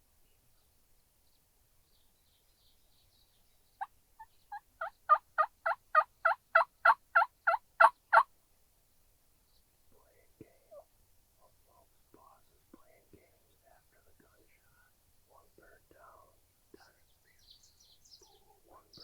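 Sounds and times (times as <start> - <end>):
turkey yelping: 4.8 - 8.3.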